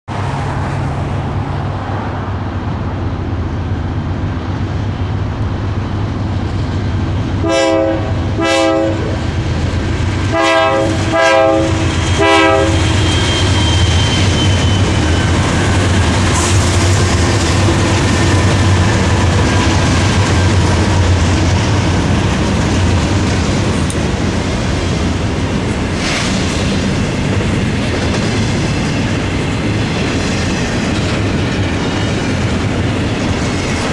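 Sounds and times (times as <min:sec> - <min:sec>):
train wheels on rails: 0:00.1 - 0:33.9
locomotive air horn blasts: 0:07.4 - 0:09.2, 0:10.3 - 0:13.0.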